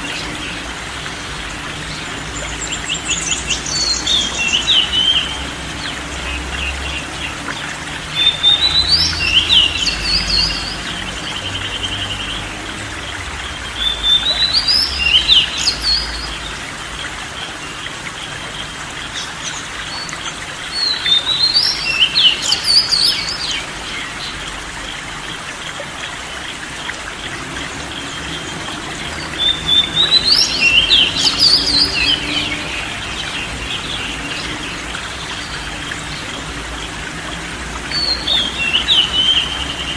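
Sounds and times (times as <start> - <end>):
trickle of running water: 0.0 - 39.9
songbird chirping: 27.2 - 39.9.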